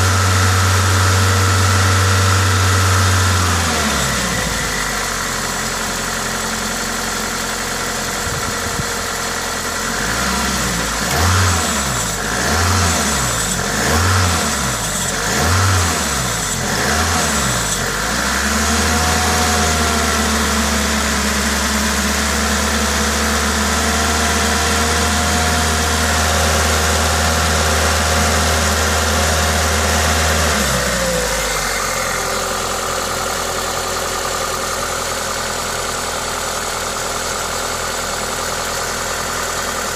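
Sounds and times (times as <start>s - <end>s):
car engine revving: 10.0s - 20.6s.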